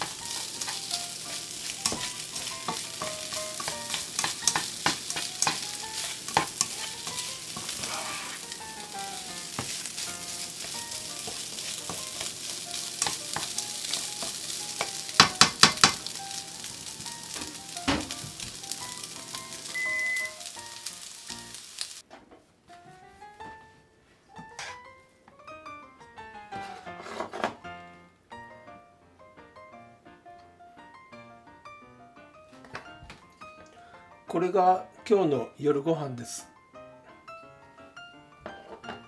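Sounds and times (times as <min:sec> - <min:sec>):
spatula scraping a pan: 0:00.0 - 0:16.2, 0:24.5 - 0:24.8, 0:26.6 - 0:27.6
light music with plucked notes: 0:00.0 - 0:21.5, 0:22.7 - 0:39.0
beef sizzling in a pan: 0:00.0 - 0:22.0.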